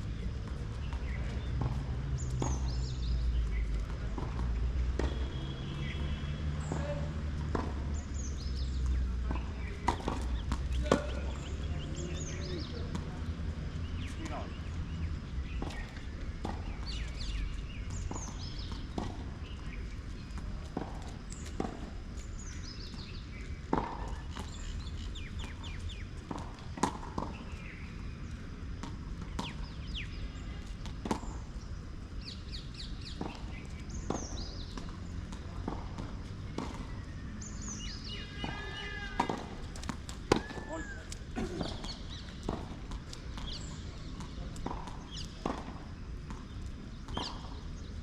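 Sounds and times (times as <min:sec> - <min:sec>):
birds chirping: 0:00.1 - 0:48.0.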